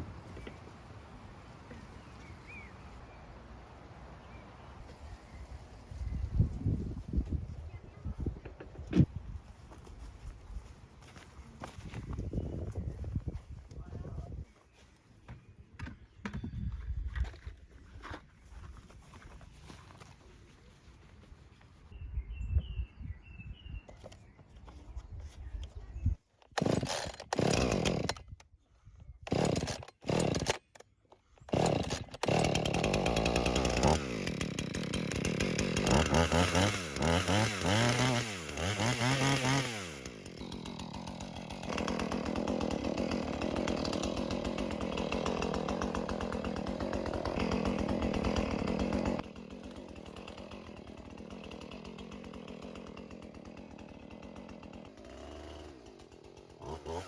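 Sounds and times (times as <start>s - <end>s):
two-stroke chainsaw revving: 26.5s - 28.3s, 29.3s - 30.8s, 31.4s - 57.0s.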